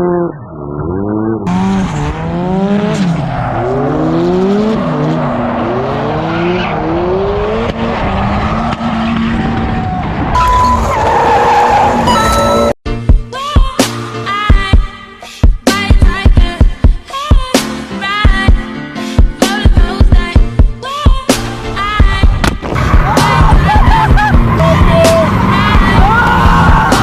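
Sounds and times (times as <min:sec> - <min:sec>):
tires squealing and skidding: 0:00.5 - 0:12.7, 0:21.4 - 0:27.0
car engine revving hard: 0:01.2 - 0:09.7, 0:21.4 - 0:27.0.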